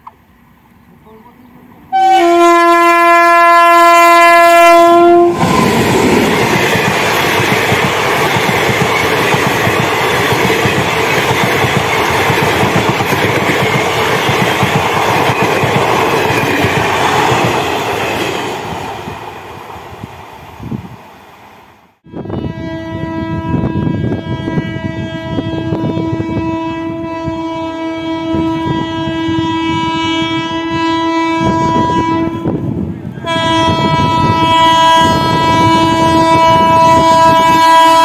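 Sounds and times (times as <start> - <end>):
locomotive horn blast: 1.9 - 5.7, 22.0 - 38.0.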